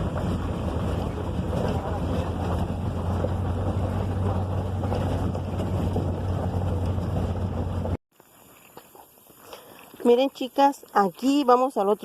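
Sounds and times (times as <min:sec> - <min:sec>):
truck engine and road rumble: 0:00.0 - 0:08.0
wind buffeting microphone: 0:00.0 - 0:08.0.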